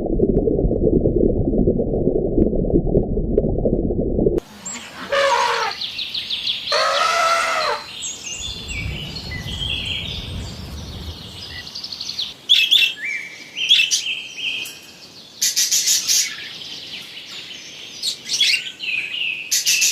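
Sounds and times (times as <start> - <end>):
birds chirping and calling: 4.6 - 19.9.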